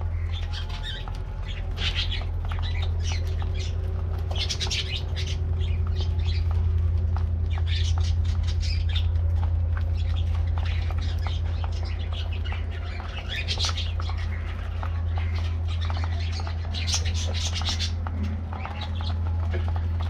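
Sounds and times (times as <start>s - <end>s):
budgerigars chattering: 0.0s - 6.6s, 7.5s - 9.1s, 9.9s - 19.8s
steady low hum: 0.0s - 20.0s.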